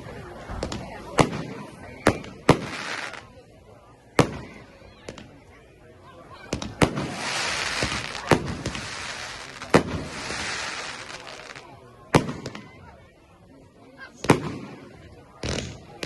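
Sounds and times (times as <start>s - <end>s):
fireworks crackling and hissing: 0.0s - 5.5s, 6.5s - 12.9s, 14.2s - 16.0s
fireworks bangs: 0.5s - 3.3s, 4.1s - 5.3s, 6.5s - 12.8s, 14.2s - 16.0s.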